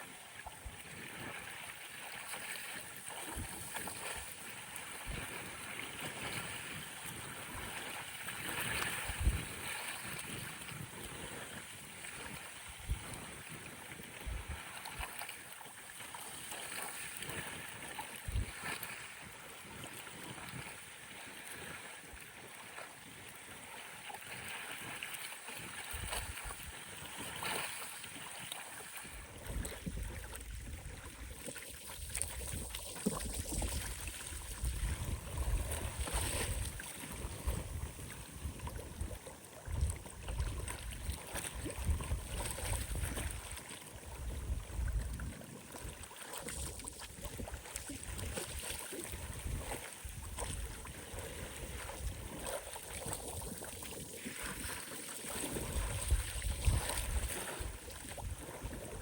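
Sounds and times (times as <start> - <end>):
waves lapping on shore: 0.0 - 59.0
wind gusting on microphone: 8.5 - 11.5, 32.0 - 43.5, 49.2 - 52.4, 55.5 - 59.0.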